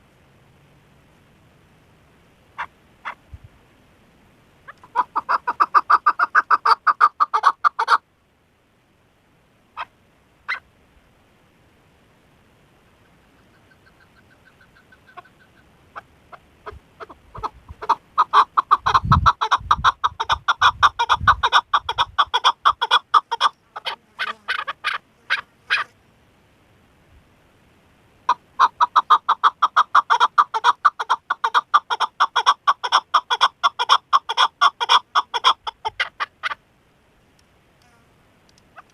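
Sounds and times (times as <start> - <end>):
partridge clucking calls: 2.5 - 3.2, 4.6 - 8.0, 9.8 - 10.7, 13.0 - 25.9, 28.3 - 36.6, 38.6 - 38.9.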